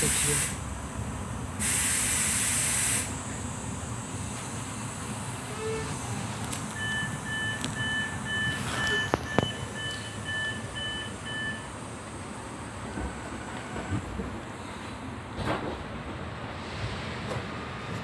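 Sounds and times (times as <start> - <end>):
standing train rumble: 0.0 - 18.0
two-pitch door warning beeps: 6.7 - 11.8.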